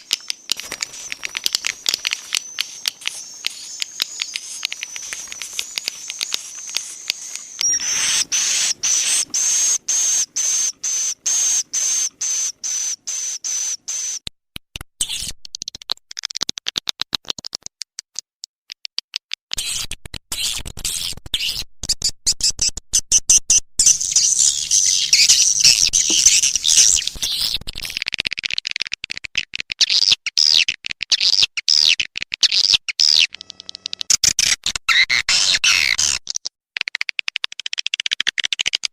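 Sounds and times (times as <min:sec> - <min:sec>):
swiftlet clicks: 0:00.0 - 0:09.5
high steady whistle-like tone: 0:00.0 - 0:14.2
high-pitched bird twittering: 0:00.0 - 0:14.2, 0:23.8 - 0:27.6.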